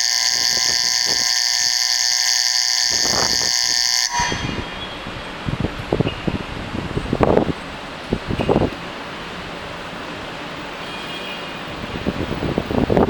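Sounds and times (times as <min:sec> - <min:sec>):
platform departure bell ringing: 0:00.0 - 0:05.4
wind noise: 0:00.0 - 0:09.8, 0:11.6 - 0:13.0.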